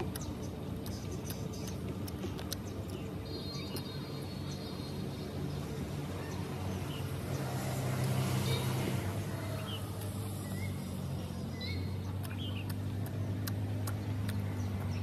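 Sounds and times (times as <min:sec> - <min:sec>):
person chewing with mouth clicks: 0:00.0 - 0:04.1, 0:09.8 - 0:11.0, 0:11.6 - 0:15.0.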